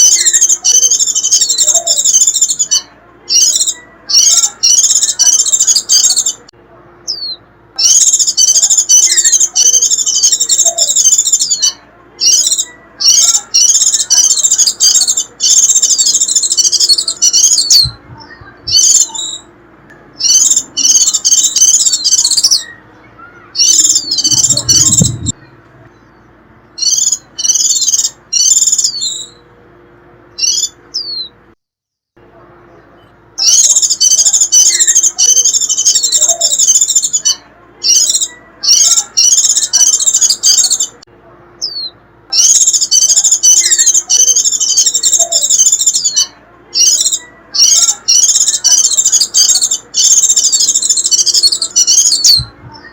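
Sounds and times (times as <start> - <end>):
bird shrill rapid twittering: 0.0 - 6.4, 7.1 - 19.5, 20.2 - 25.4, 26.8 - 29.4, 30.4 - 31.3, 33.4 - 40.9, 41.6 - 52.5
low rumble: 23.7 - 26.4.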